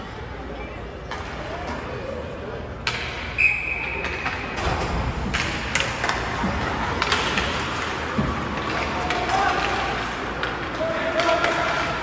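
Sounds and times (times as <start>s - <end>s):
referee's whistle: 3.4s - 4.0s.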